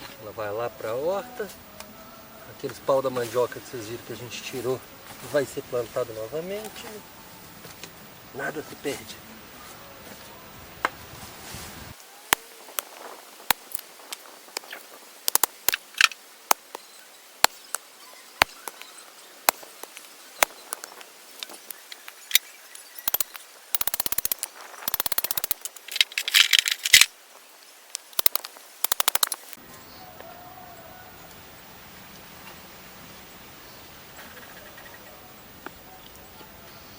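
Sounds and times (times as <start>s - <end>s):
wood fire crackling and popping: 12.3s - 16.8s, 19.4s - 29.6s.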